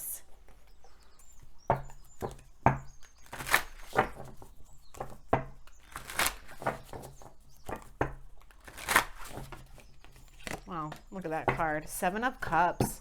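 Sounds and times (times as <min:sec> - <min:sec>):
cards being shuffled: 0:03.2 - 0:05.1, 0:05.9 - 0:07.1, 0:08.4 - 0:10.7.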